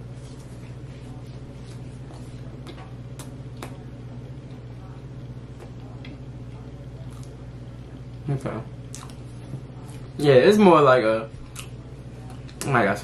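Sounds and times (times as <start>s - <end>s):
steady low hum: 0.0s - 13.0s
chewing crunches: 8.9s - 9.3s, 11.4s - 12.7s.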